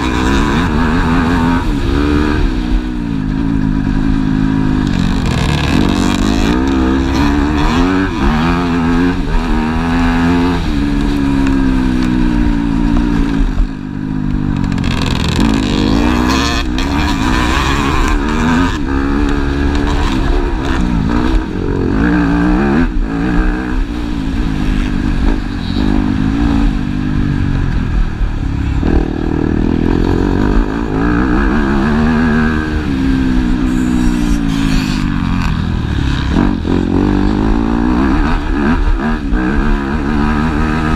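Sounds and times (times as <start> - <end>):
motocross bike engines revving: 0.0 - 40.9.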